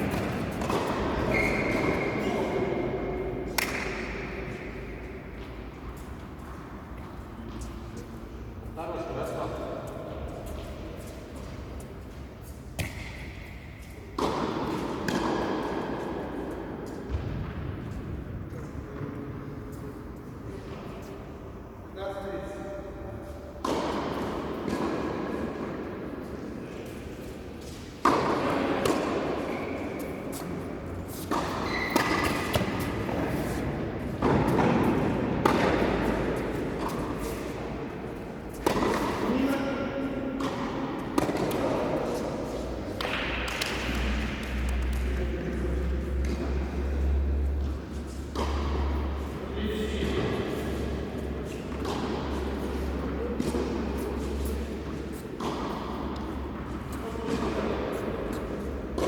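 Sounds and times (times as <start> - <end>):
tennis balls struck by rackets: 0.0 - 2.2, 2.9 - 5.7, 12.7 - 17.9, 23.5 - 26.0, 27.6 - 39.6, 40.2 - 46.6, 47.6 - 59.0.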